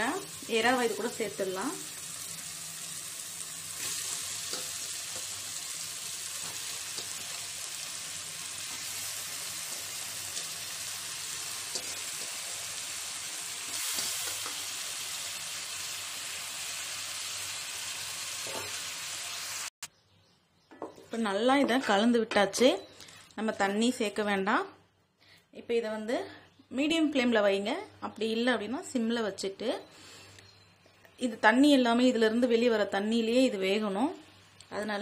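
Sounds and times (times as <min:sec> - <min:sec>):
food sizzling in a pot: 0:00.0 - 0:19.8.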